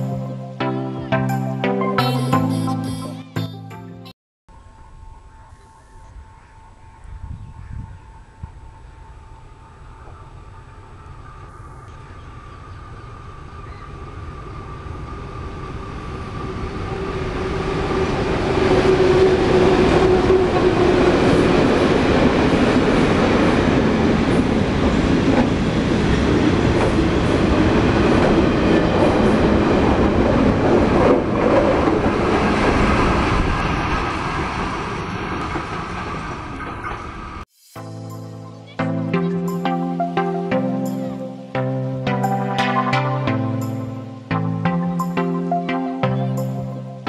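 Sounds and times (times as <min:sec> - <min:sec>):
diesel train passing: 0:08.6 - 0:37.4.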